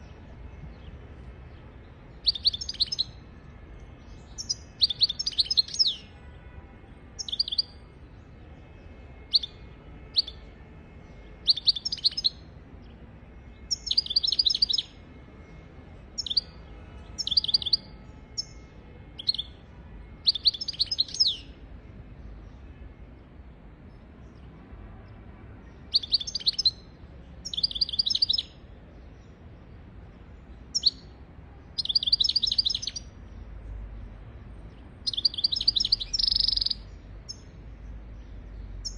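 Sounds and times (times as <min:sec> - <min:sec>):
goldfinch twittering song: 0:02.2 - 0:03.2, 0:04.3 - 0:06.0, 0:07.2 - 0:07.7, 0:11.5 - 0:12.4, 0:13.7 - 0:14.9, 0:16.2 - 0:16.5, 0:17.2 - 0:17.8, 0:20.2 - 0:21.5, 0:25.9 - 0:26.8, 0:27.4 - 0:28.5, 0:30.7 - 0:31.1, 0:31.8 - 0:33.1, 0:35.0 - 0:37.5.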